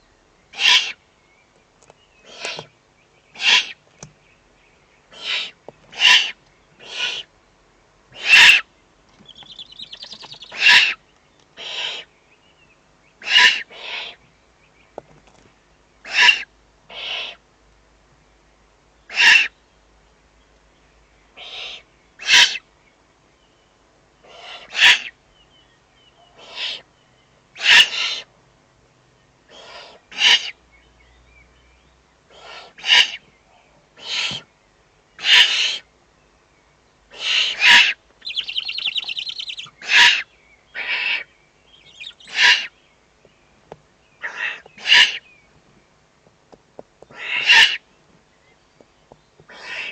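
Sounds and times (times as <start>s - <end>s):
owl chicks hissing begging calls: 0.5s - 1.0s, 2.2s - 3.9s, 5.1s - 7.3s, 8.1s - 12.2s, 13.2s - 14.3s, 16.0s - 17.5s, 19.1s - 19.6s, 21.3s - 22.7s, 24.2s - 25.2s, 26.2s - 26.9s, 27.5s - 28.4s, 29.4s - 30.7s, 32.3s - 33.3s, 33.9s - 34.5s, 35.2s - 35.9s, 37.1s - 42.8s, 44.2s - 45.3s, 47.1s - 47.9s, 49.4s - 49.9s
rattling owl call: 0.5s - 1.0s, 2.2s - 2.7s, 3.3s - 4.2s, 5.1s - 7.3s, 8.1s - 11.0s, 11.6s - 12.1s, 13.2s - 14.2s, 16.0s - 17.4s, 19.1s - 19.6s, 21.4s - 22.7s, 24.3s - 25.2s, 26.4s - 26.9s, 27.6s - 28.3s, 29.5s - 30.6s, 32.3s - 33.3s, 34.0s - 34.5s, 35.2s - 35.9s, 37.1s - 42.8s, 44.2s - 45.3s, 47.1s - 47.9s, 49.5s - 49.9s.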